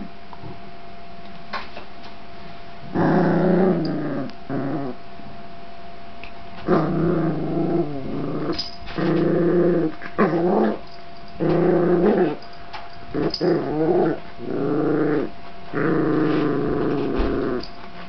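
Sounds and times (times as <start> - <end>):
dog growling: 2.9 - 5.0, 6.6 - 12.5, 13.1 - 17.7.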